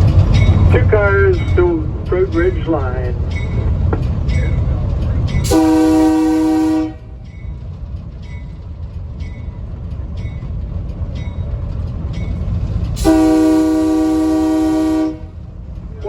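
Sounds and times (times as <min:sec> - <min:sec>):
rail car rumbling on track: 0:00.0 - 0:16.0
train horn blasts: 0:05.5 - 0:07.2, 0:13.0 - 0:15.4.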